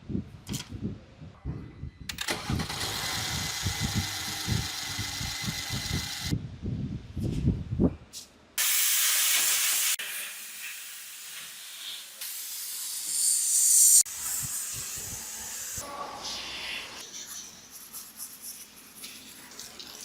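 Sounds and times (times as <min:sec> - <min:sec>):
hissing spray bursts: 0:08.6 - 0:16.9.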